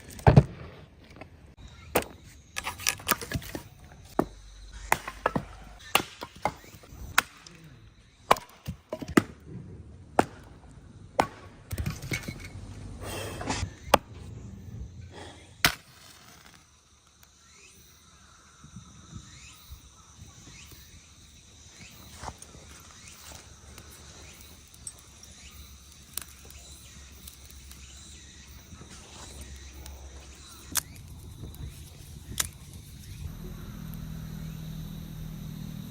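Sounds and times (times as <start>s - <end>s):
axe chopping wood: 4.2s - 7.5s, 8.3s - 9.4s, 10.2s - 10.5s, 11.2s - 12.2s.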